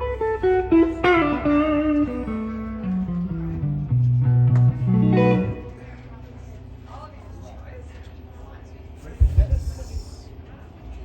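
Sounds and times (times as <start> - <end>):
electric guitar blues lick: 0.0 - 5.9.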